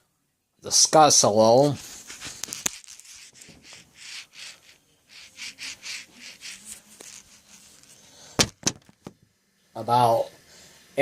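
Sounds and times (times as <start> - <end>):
soft rubbing strokes: 1.2 - 8.4.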